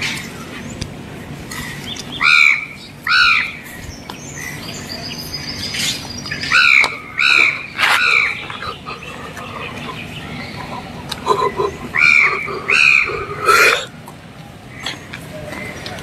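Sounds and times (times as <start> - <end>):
bird harsh calls: 0.0 - 14.0.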